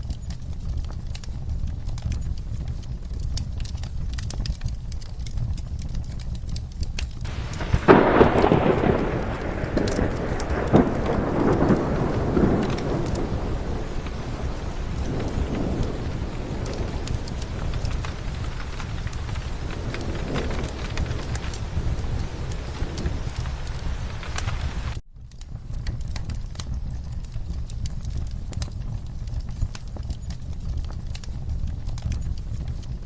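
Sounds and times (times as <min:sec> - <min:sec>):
low rumble: 0:00.0 - 0:33.0
rain falling: 0:00.0 - 0:33.0
wood fire crackling: 0:00.0 - 0:33.0
rolling thunderclap: 0:07.2 - 0:25.0.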